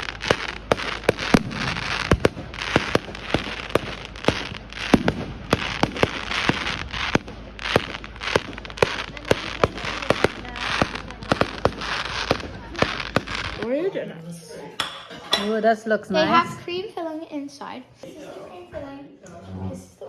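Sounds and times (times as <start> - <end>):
fireworks crackling hiss: 0.0 - 13.9
fireworks cracking: 0.0 - 14.0.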